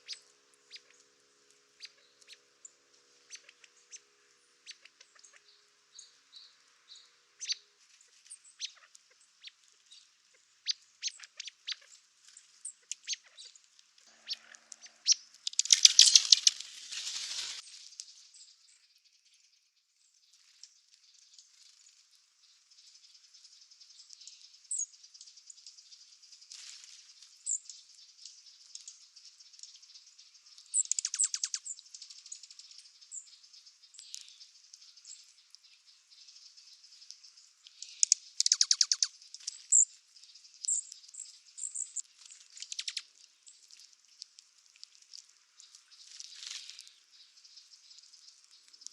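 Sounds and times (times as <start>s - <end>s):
squirrel rattling trill call: 0.0s - 12.0s, 12.6s - 17.6s, 28.4s - 35.2s, 37.0s - 43.6s
squirrel high chirps: 14.2s - 16.7s, 30.8s - 31.8s, 37.8s - 39.9s, 42.6s - 43.1s.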